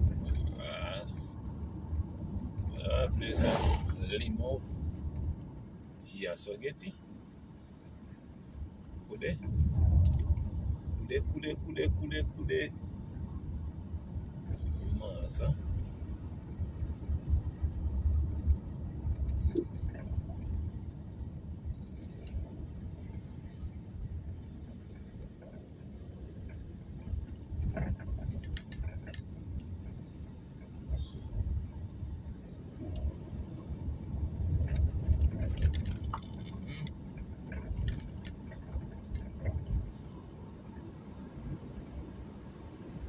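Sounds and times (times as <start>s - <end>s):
car driving rumble: 0.0s - 43.0s
clicks and rattles in car: 9.5s - 12.6s, 14.4s - 40.6s.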